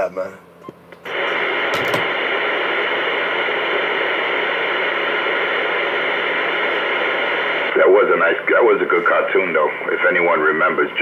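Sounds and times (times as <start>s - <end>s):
radio static hiss: 1.1s - 11.0s.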